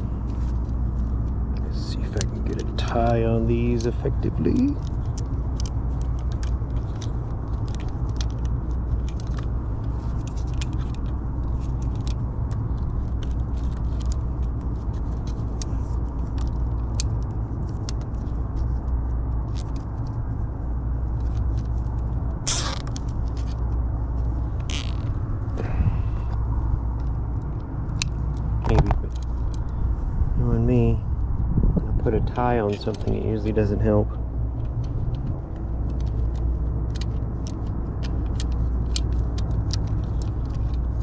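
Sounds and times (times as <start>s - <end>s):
low machine hum: 0.0s - 41.0s
clicks of wires being handled: 21.2s - 23.8s, 24.5s - 25.2s, 26.2s - 29.7s
cable ties pulled tight: 22.4s - 23.5s, 24.6s - 25.1s.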